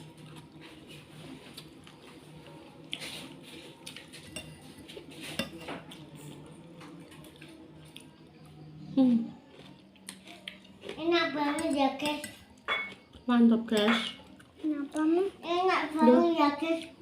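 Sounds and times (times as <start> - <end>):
cutlery clinking against bowl: 3.9 - 6.0, 11.5 - 13.1, 13.7 - 14.4.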